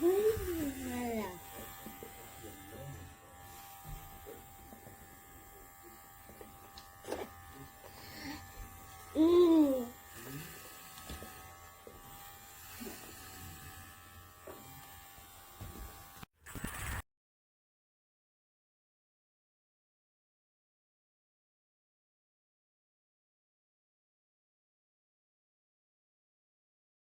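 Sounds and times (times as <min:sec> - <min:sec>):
pet clippers buzzing: 0:00.0 - 0:17.0.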